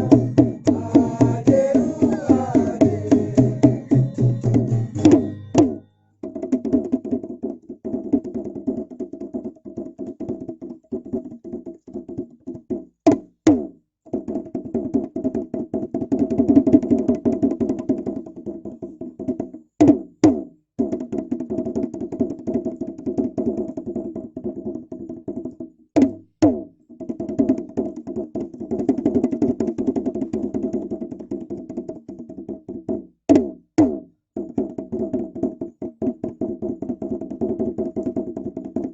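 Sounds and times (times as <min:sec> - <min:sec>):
sharp accented drum strikes: 0:00.0 - 0:05.9
fast drumming: 0:00.0 - 0:38.9.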